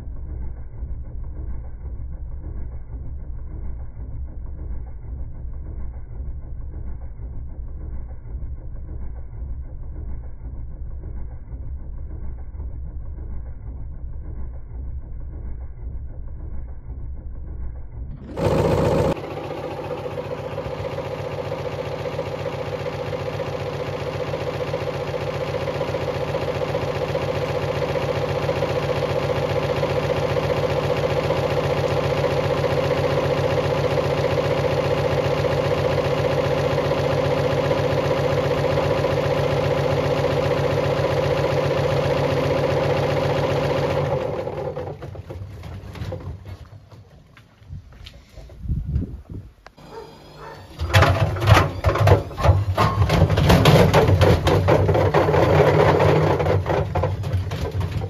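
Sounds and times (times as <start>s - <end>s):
washing machine hum: 18.1s - 47.3s, 49.8s - 58.0s.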